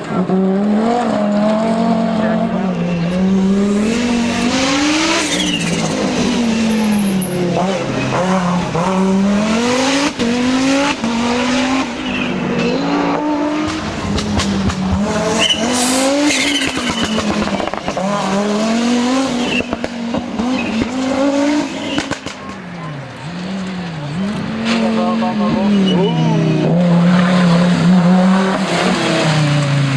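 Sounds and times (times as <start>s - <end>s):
race car engine revving: 0.0s - 29.9s
exhaust crackles and pops: 13.5s - 18.0s, 21.8s - 26.1s.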